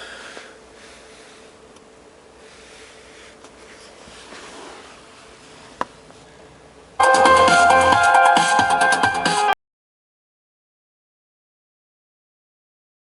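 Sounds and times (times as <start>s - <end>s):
faint hiss with low hum: 0.0s - 7.0s.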